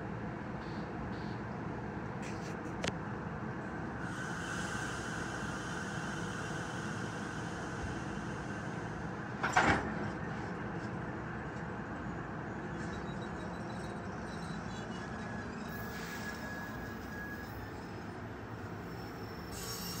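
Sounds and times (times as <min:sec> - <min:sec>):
commuter train rumbling: 0:00.0 - 0:20.0
high wheel squeal: 0:12.5 - 0:20.0.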